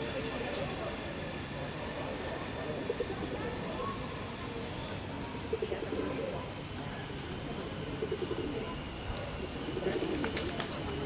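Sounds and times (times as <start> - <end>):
pigeons cooing: 7.8 - 8.9, 9.5 - 11.0.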